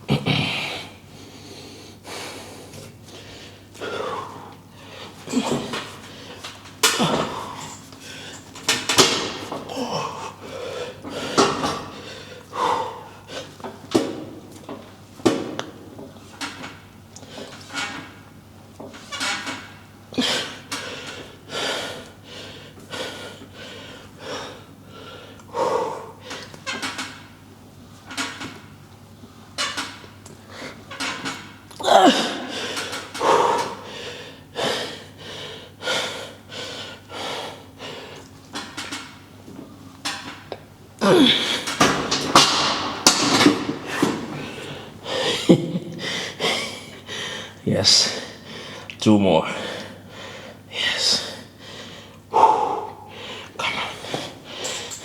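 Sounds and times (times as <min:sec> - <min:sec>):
man breathing hard: 0:00.2 - 0:13.7, 0:20.1 - 0:26.6, 0:31.8 - 0:38.7, 0:43.6 - 0:55.0
man grunting with effort: 0:05.3 - 0:05.9, 0:09.6 - 0:10.4, 0:31.8 - 0:32.6, 0:41.0 - 0:41.8.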